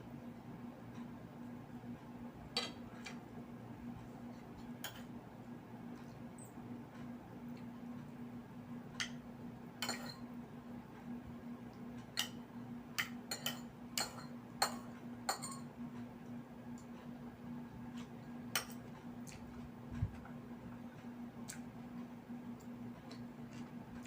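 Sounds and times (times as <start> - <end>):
steady low hum: 0.0 - 24.0
tableware clinking: 9.8 - 10.3, 13.0 - 15.7.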